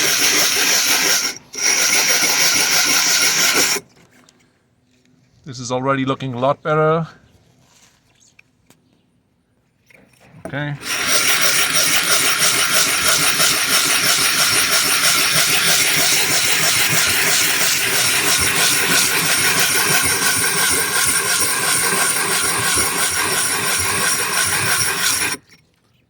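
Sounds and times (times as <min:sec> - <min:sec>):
glass grinding on sandpaper: 0:00.0 - 0:03.8, 0:10.8 - 0:25.6.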